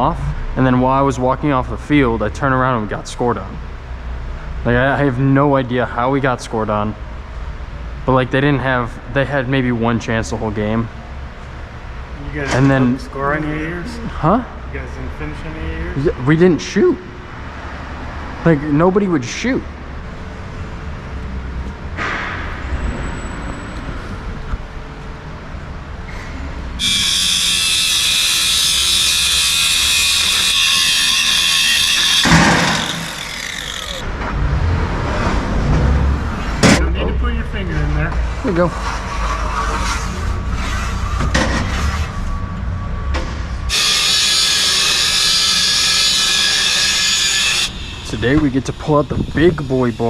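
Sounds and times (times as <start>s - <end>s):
angle grinder cutting steel: 26.8s - 34.0s, 43.7s - 50.0s.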